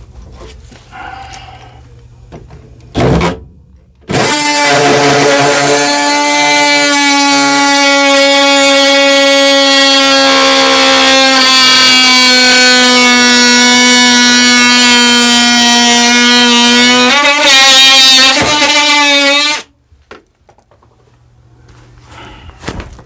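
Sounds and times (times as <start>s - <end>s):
power tool cutting wood: 4.1s - 19.7s.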